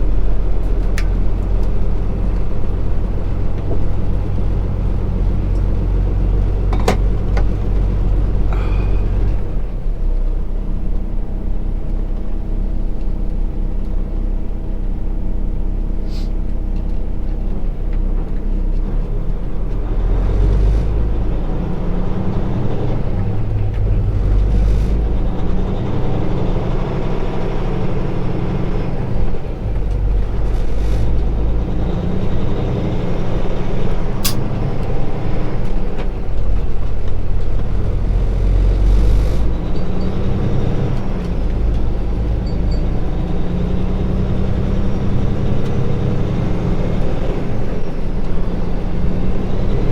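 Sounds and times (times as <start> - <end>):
diesel truck engine shifting gears: 0.0 - 49.9
sharp click: 34.2 - 34.5.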